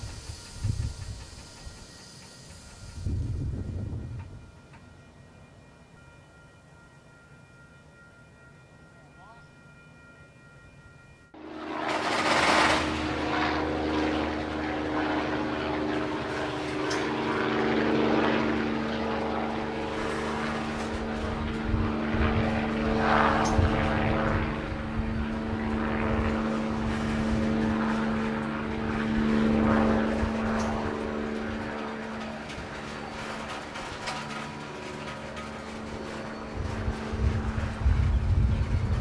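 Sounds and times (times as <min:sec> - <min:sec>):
train wheels rumbling on rail: 0:00.0 - 0:04.9, 0:19.5 - 0:22.5, 0:26.5 - 0:39.0
steady droning hum: 0:11.4 - 0:39.0.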